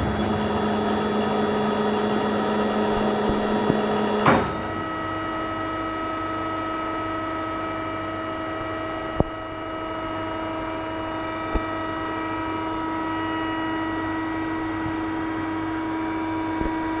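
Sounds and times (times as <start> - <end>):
drilling machine humming: 0.0 - 7.2.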